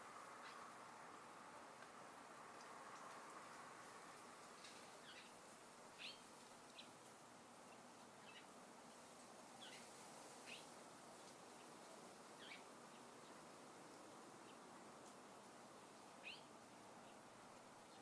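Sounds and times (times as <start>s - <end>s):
faint outdoor hiss: 0.0s - 18.0s
faint bird chirps: 12.4s - 12.7s.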